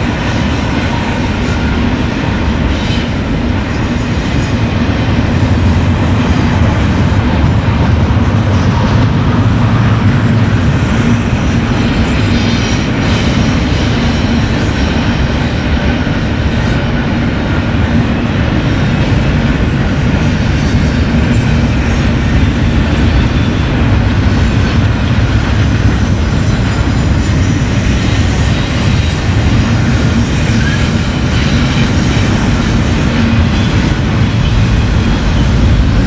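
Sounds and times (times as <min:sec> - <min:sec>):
freight train wheels rumbling: 0:00.0 - 0:36.0.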